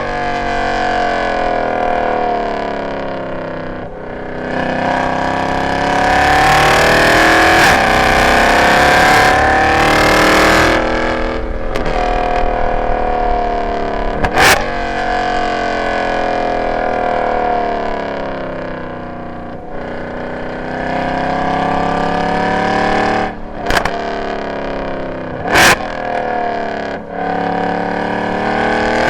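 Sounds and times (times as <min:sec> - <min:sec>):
car engine accelerating hard: 0:00.0 - 0:29.0
sharp crack: 0:23.6 - 0:24.2.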